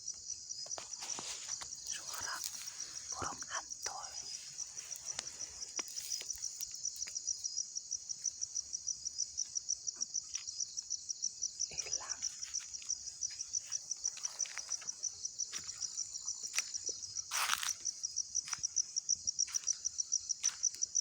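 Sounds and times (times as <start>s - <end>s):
cricket chirping: 0.0s - 21.0s.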